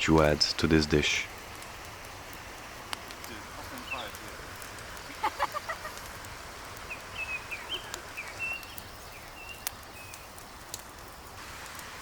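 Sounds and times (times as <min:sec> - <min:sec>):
low hiss: 0:00.0 - 0:12.0
birds chirping: 0:03.1 - 0:10.7.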